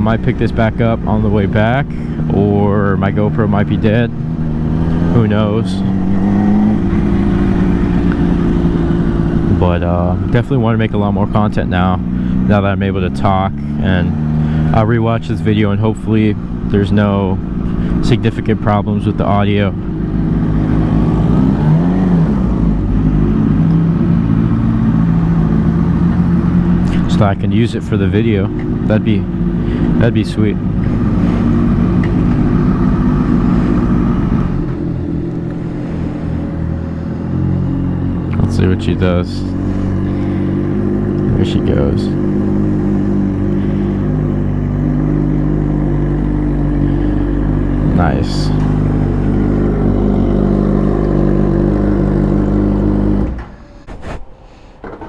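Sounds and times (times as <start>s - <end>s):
motorcycle engine running: 0.0s - 53.8s
wind rumble: 4.1s - 10.4s.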